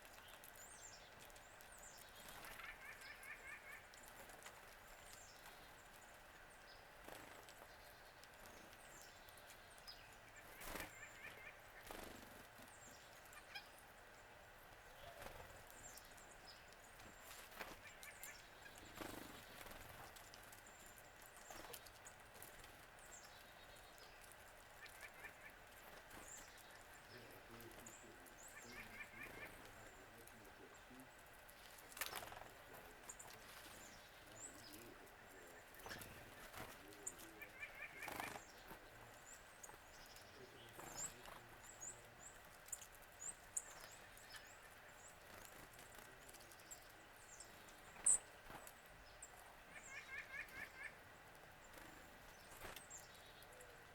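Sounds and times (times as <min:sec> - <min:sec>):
bird chirps: 0:23.0 - 0:32.3, 0:32.9 - 0:51.0.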